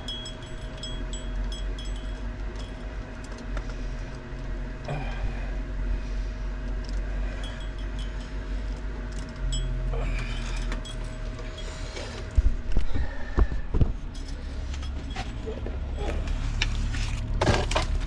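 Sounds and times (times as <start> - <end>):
metal tools clinking on fittings: 0.0 - 3.4, 6.8 - 12.3
steady low hum: 0.0 - 18.0.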